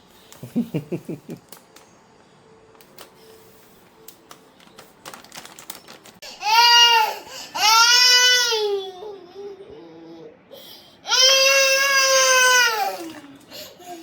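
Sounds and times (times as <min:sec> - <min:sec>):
toddler crying: 0:06.4 - 0:10.4, 0:11.0 - 0:13.2.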